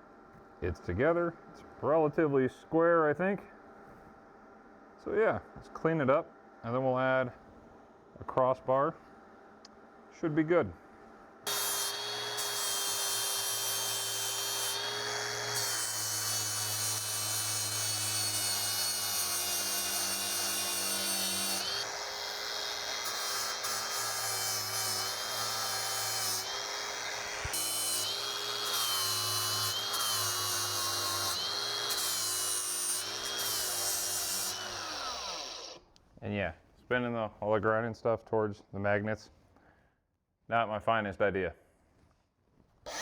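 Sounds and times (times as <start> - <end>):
angle grinder grinding steel: 11.5 - 35.8.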